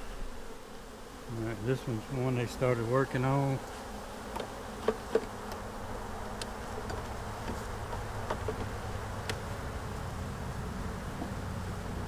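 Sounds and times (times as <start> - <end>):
honeybees buzzing: 0.0 - 12.0
hive frames knocking and clicking: 4.2 - 9.6.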